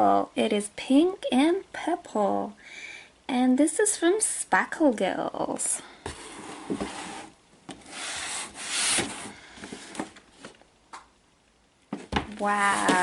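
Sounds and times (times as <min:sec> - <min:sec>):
hands scraping packaging: 0:06.1 - 0:10.1, 0:12.4 - 0:13.0.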